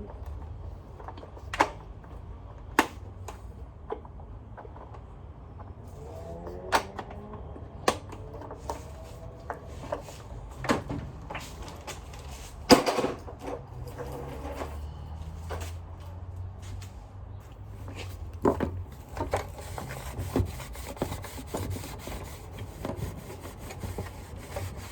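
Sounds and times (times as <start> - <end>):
vacuum parts clicking and knocking: 17.9 - 24.9.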